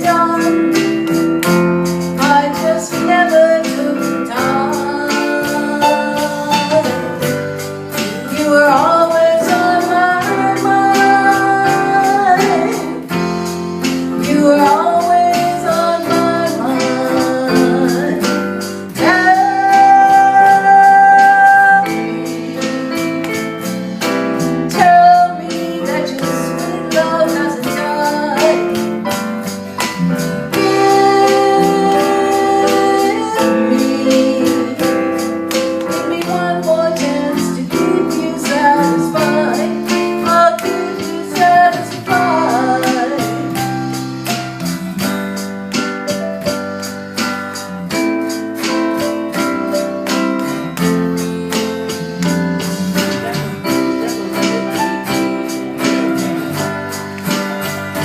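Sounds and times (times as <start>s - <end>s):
woman singing: 0.0s - 13.2s, 14.1s - 23.4s, 24.7s - 29.2s, 30.5s - 44.0s, 53.0s - 57.0s
band playing: 0.0s - 58.0s.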